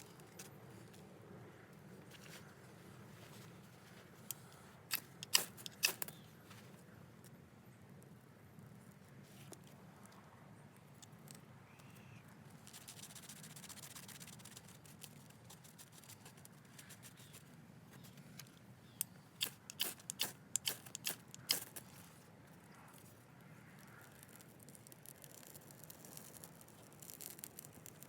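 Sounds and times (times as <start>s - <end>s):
sharp clicks: 4.9s - 6.2s, 19.0s - 21.8s.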